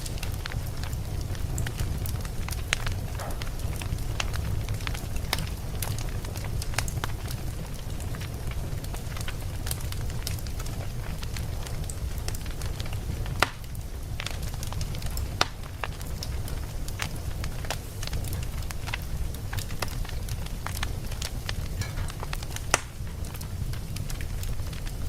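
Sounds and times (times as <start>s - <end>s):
wood fire crackling: 0.0s - 25.0s
sharp loud pops: 21.8s - 23.0s.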